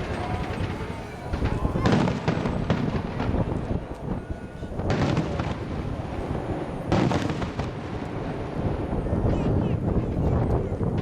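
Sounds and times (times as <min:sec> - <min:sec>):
firework shells bursting: 0:00.0 - 0:08.6
low rumble of detonations: 0:00.0 - 0:11.0
sharp firework booms: 0:00.0 - 0:11.0.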